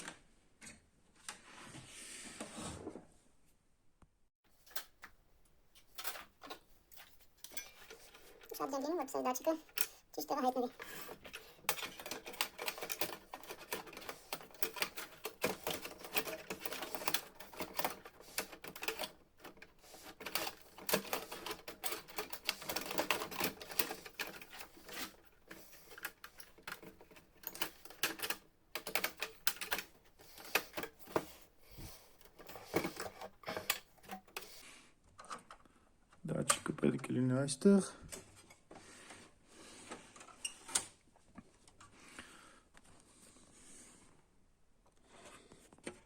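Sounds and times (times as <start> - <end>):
plastic parts clicking and rattling: 4.5 - 37.0.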